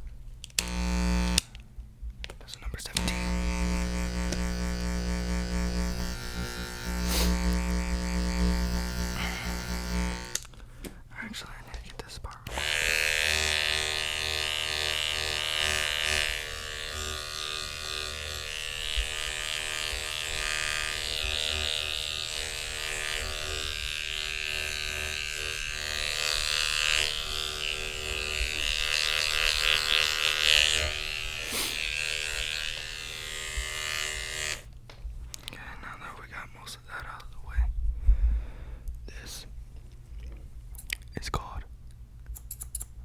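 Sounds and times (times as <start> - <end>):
electric hair clippers buzzing: 0.5 - 1.6, 2.9 - 10.5, 12.5 - 34.8.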